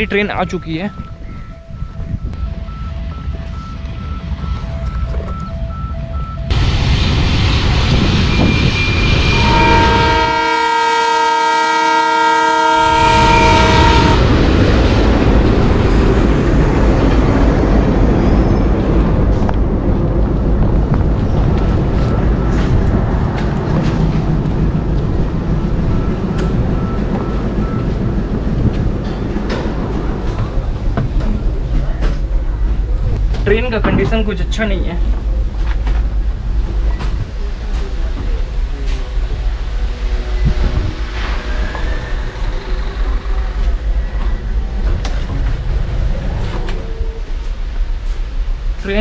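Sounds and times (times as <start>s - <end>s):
diesel locomotive engine rumbling: 0.0s - 49.0s
train horn blast: 8.4s - 14.3s, 39.9s - 42.1s.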